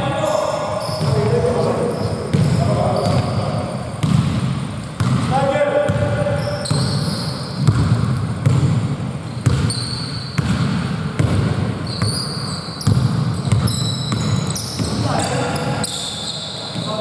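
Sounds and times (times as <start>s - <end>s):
sneaker squeaks: 0.0s - 17.0s
basketball bouncing on floor: 2.3s - 3.4s, 4.0s - 12.2s, 12.8s - 15.1s.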